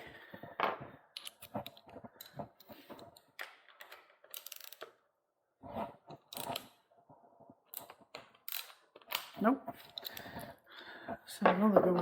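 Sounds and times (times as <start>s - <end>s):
hand tools clicking and knocking: 0.6s - 4.9s, 7.6s - 10.4s.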